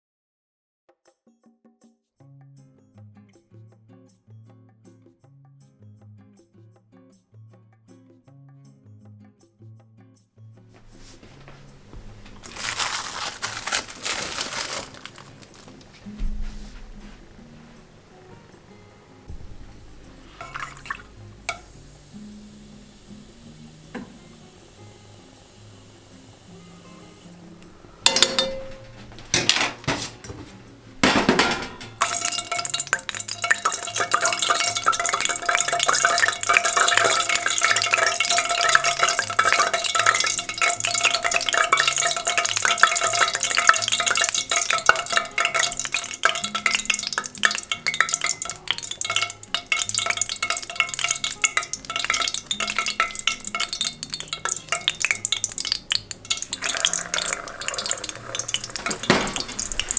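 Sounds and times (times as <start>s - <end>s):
meatballs sizzling in a pan: 10.9s - 28.2s, 31.8s - 59.9s
utensils knocking cookware: 19.4s - 21.9s, 28.0s - 59.9s.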